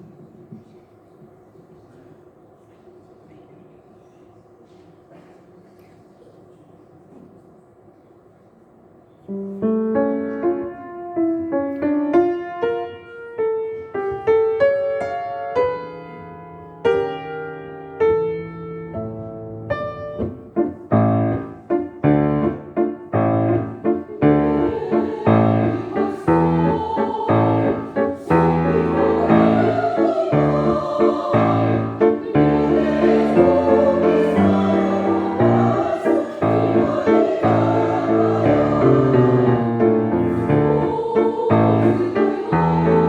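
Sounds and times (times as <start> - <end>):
piano waltz: 9.2 - 43.0.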